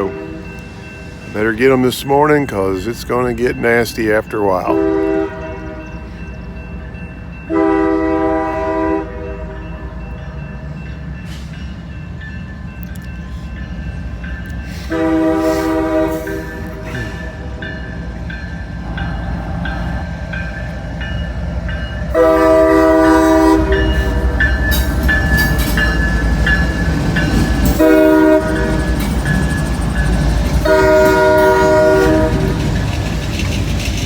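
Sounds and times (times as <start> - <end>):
locomotive horn blasts: 0.0 - 0.6, 4.7 - 6.1, 7.5 - 9.8, 14.9 - 17.6, 22.1 - 24.5, 27.7 - 28.9, 30.6 - 32.7
train rumbling past: 0.0 - 34.0.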